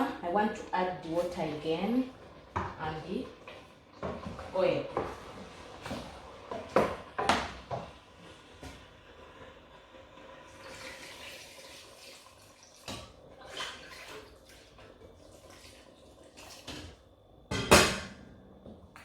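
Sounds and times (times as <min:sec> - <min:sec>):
water pouring into a pot: 0:08.3 - 0:16.8.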